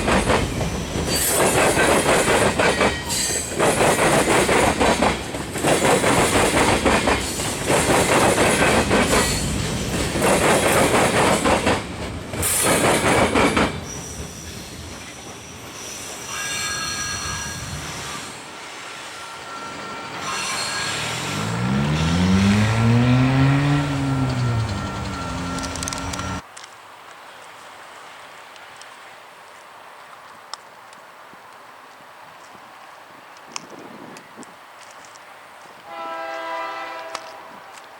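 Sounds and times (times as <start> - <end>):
train wheel clatter: 0.0 - 17.4, 20.2 - 26.4
wheel squeal: 13.8 - 26.4.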